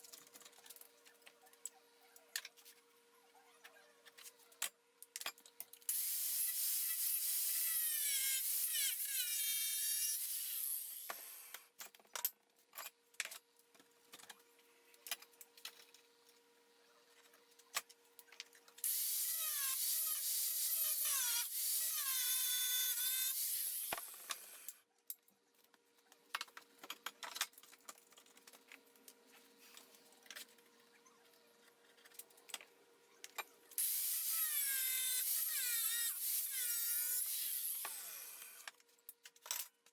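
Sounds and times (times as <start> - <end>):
clicks and clatter of steel: 4.0 - 5.9, 23.9 - 30.7, 38.4 - 39.9
power tool cutting steel: 5.9 - 11.6, 18.8 - 24.7, 33.8 - 38.7.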